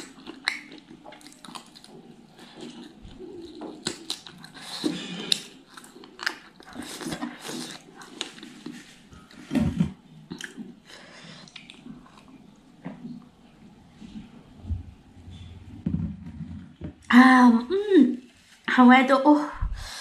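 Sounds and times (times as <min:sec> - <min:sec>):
chewing with wet smacks: 0:00.0 - 0:08.9, 0:10.3 - 0:13.2.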